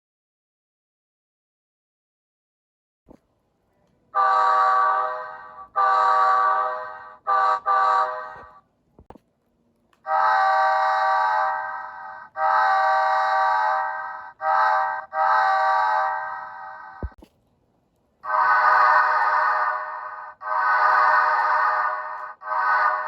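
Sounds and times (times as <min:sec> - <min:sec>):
diesel locomotive horn: 0:04.1 - 0:08.6, 0:10.1 - 0:16.5.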